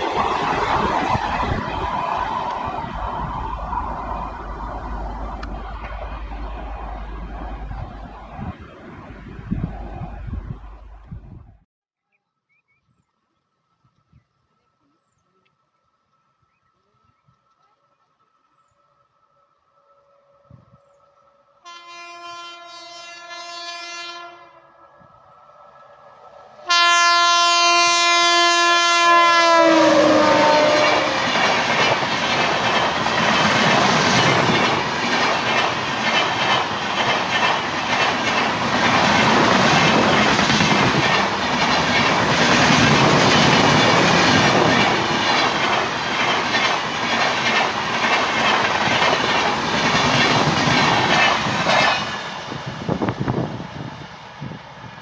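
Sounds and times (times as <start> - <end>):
train coaches rushing on track: 0.0 - 11.1, 20.5 - 55.0
locomotive horn blasts: 21.6 - 24.7, 26.6 - 31.3.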